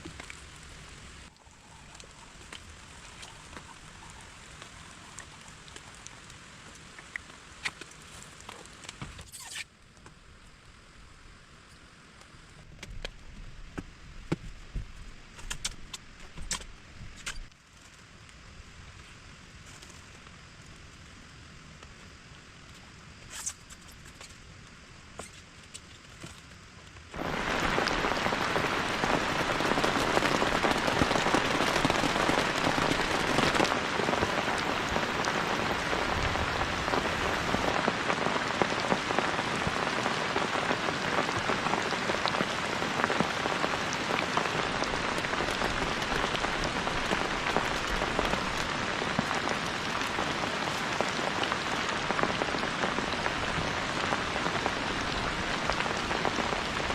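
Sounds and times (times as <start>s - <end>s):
heavy rain pouring: 0.0s - 9.2s, 27.1s - 56.9s.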